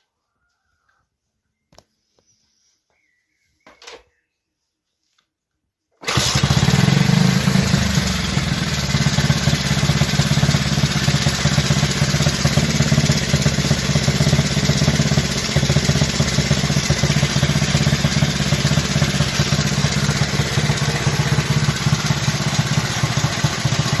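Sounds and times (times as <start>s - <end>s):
motorcycle engine idling: 6.1s - 24.0s.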